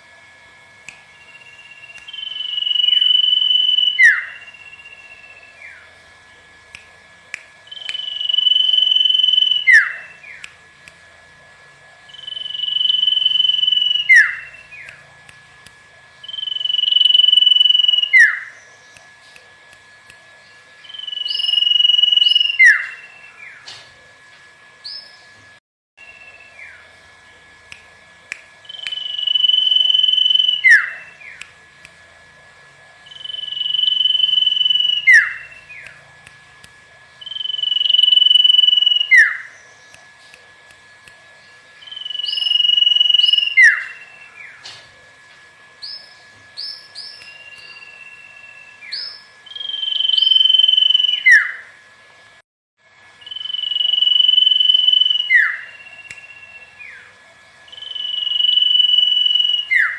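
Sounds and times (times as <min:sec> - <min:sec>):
faint steady high tone: 0:01.1 - 0:05.8, 0:07.7 - 0:10.4, 0:12.0 - 0:14.9, 0:16.2 - 0:18.4, 0:28.6 - 0:31.2, 0:33.0 - 0:35.9, 0:37.2 - 0:39.3, 0:41.8 - 0:44.4, 0:53.2 - 0:57.0, 0:57.7 - 0:59.9
bird whistling song: 0:01.1 - 0:05.9, 0:07.7 - 0:10.5, 0:12.1 - 0:15.0, 0:16.2 - 0:19.0, 0:20.8 - 0:23.6, 0:24.8 - 0:25.3, 0:26.0 - 0:26.9, 0:28.6 - 0:31.4, 0:33.0 - 0:36.0, 0:37.2 - 0:39.9, 0:41.8 - 0:44.6, 0:45.8 - 0:51.7, 0:53.2 - 0:57.1, 0:57.7 - 0:59.9.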